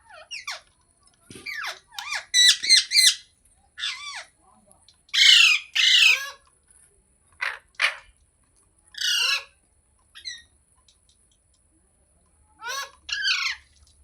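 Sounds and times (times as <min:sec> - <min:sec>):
parakeet calling: 0:01.4 - 0:03.2, 0:03.8 - 0:04.3, 0:05.2 - 0:06.4, 0:09.0 - 0:09.5, 0:12.6 - 0:13.6.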